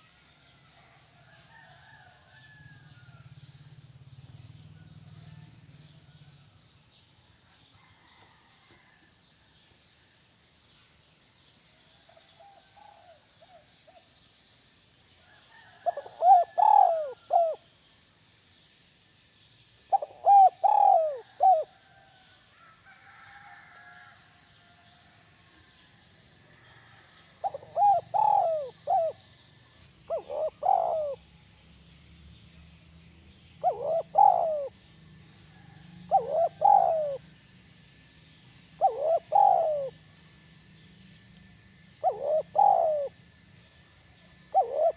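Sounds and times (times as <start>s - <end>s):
steady high hiss: 6.5s - 44.9s
dove cooing: 15.5s - 17.6s, 19.9s - 21.8s, 27.4s - 31.2s, 33.6s - 34.8s, 36.1s - 37.3s, 38.8s - 40.0s, 42.0s - 43.2s, 44.4s - 44.9s.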